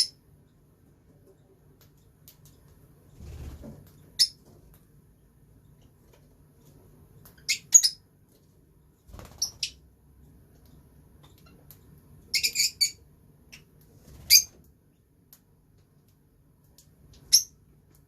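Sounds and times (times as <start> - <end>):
lovebirds chirping: 3.9 - 4.5, 6.7 - 8.2, 8.8 - 15.2, 17.0 - 17.8.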